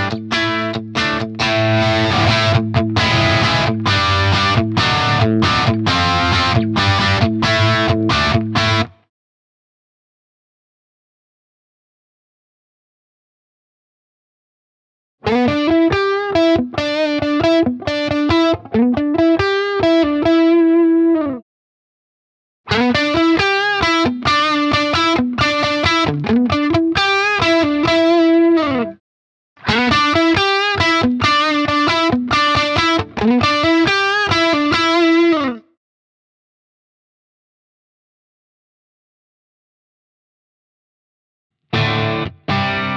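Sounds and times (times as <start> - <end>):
electric guitar picked phrase: 0.0 - 9.0, 15.3 - 21.4, 22.7 - 29.0, 29.6 - 35.6, 41.7 - 42.9.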